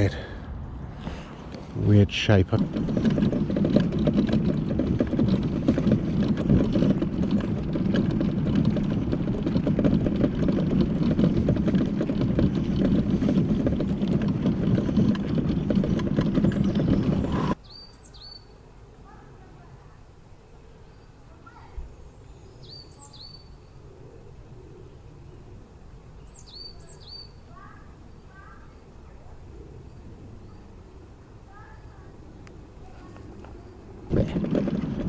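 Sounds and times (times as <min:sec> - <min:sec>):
mobility scooter rattling: 0:01.2 - 0:18.1, 0:21.4 - 0:35.0
bird chirps: 0:16.4 - 0:19.2, 0:20.5 - 0:34.0.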